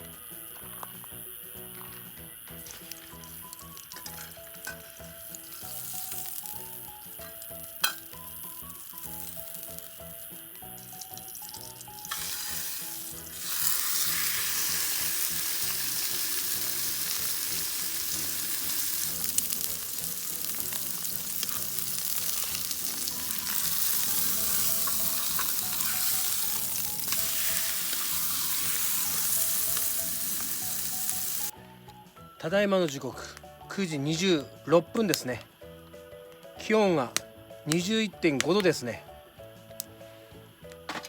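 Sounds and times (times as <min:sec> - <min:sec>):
steak sizzling on a grill: 0:00.0 - 0:31.7
faint background music: 0:00.0 - 0:41.0.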